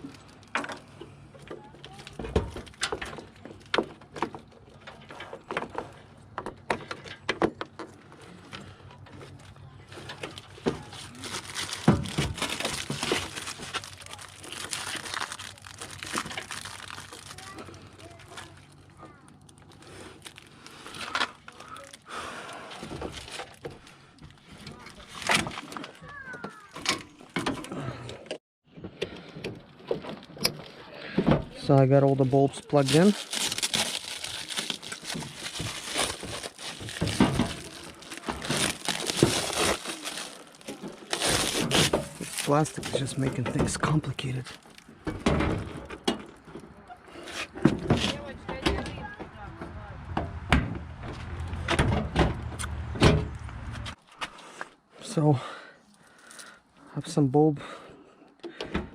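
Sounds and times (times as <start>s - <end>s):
plastic parts creaking and clicking: 0.0s - 49.2s
plastic crinkling and rustling: 1.6s - 6.0s, 9.1s - 27.6s, 31.5s - 48.3s.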